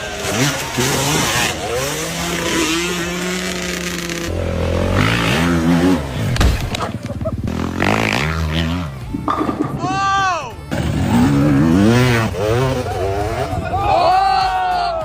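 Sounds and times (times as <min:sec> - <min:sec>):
motorcycle engine revving: 0:00.0 - 0:09.6, 0:10.5 - 0:13.7.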